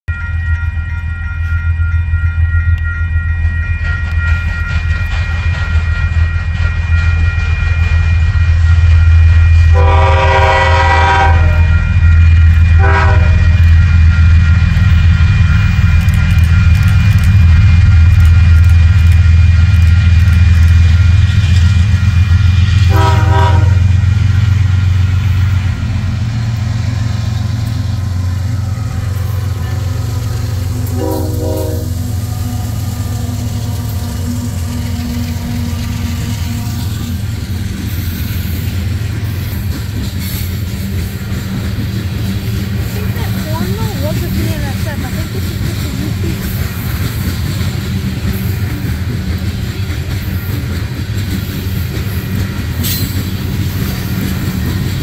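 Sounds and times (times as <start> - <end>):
diesel locomotives rumbling: 0.1 - 55.0
locomotive horn blasts: 9.7 - 11.9, 12.7 - 13.7, 22.8 - 24.0, 28.7 - 34.8.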